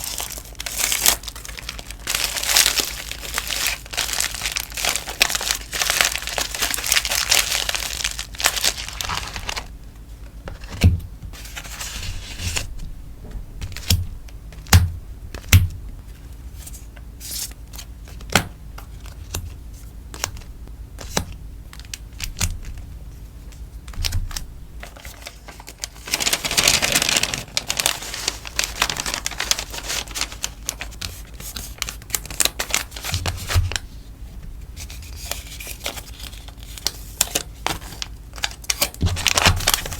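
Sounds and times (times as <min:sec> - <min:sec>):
plastic and paper packaging crinkling: 0:00.0 - 0:12.8, 0:20.1 - 0:34.1, 0:34.8 - 0:39.9.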